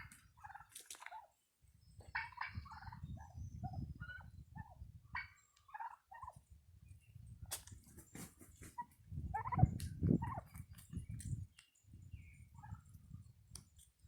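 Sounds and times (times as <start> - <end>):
turkeys calling: 0.0 - 1.3, 2.0 - 6.5, 8.2 - 10.8.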